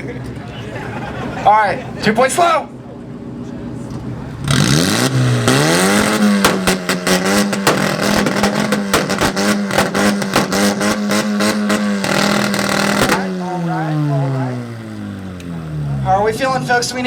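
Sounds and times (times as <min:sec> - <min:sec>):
car engine revving on limiter: 0:04.3 - 0:16.4
exhaust popping and cracking: 0:04.4 - 0:16.1.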